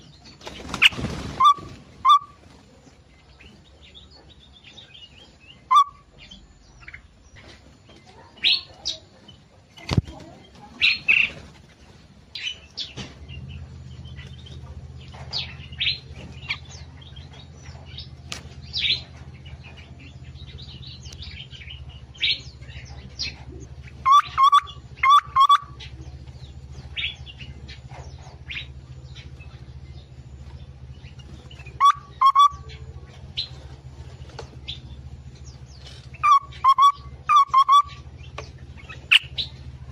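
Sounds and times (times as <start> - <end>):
louder lower bird calls: 0.0 - 2.6, 5.3 - 6.5, 20.5 - 33.6, 34.6 - 39.8
small birds chirping: 0.0 - 39.9
steady low hum: 0.0 - 39.9.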